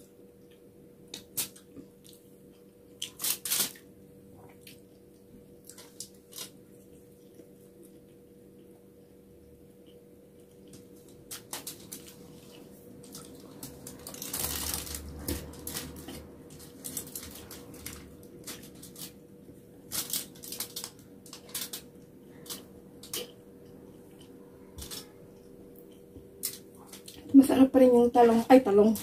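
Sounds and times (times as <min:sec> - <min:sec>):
faint steady hum: 0:00.0 - 0:29.0
fingers picking food off foil: 0:19.8 - 0:23.4.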